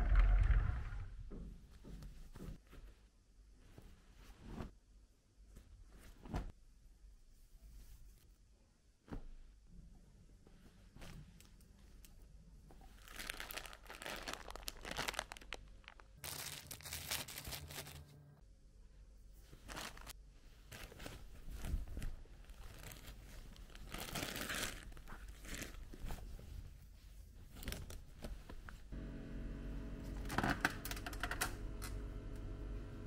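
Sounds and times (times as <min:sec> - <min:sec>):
tote bag rustling and crinkling: 0:12.9 - 0:18.1, 0:19.5 - 0:26.4.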